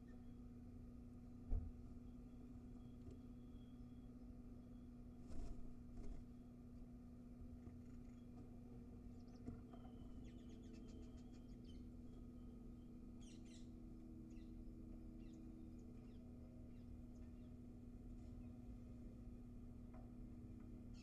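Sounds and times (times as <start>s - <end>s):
steady low hum: 0.0s - 21.0s
small birds chirping: 7.6s - 17.7s.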